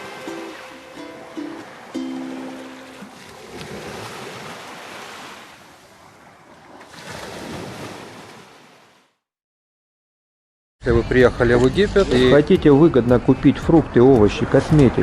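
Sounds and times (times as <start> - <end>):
sea surf washing on shore: 0.0 - 9.0.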